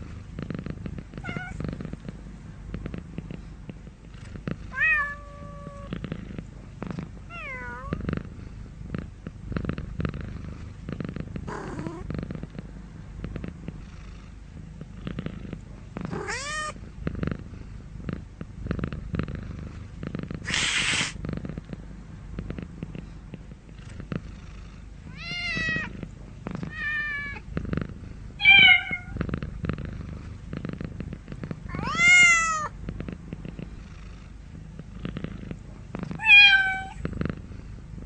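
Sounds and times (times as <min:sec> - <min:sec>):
cat purring: 0:00.0 - 0:38.0
cat meowing: 0:01.2 - 0:01.6, 0:16.2 - 0:16.8, 0:28.4 - 0:29.2, 0:31.7 - 0:32.7, 0:36.2 - 0:37.0.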